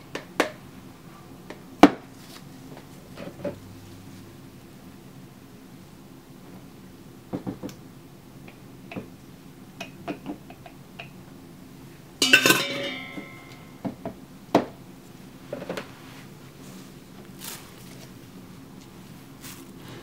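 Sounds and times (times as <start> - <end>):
metal ringing clatter: 12.2 - 13.8
utensils knocking and clinking: 12.2 - 14.0.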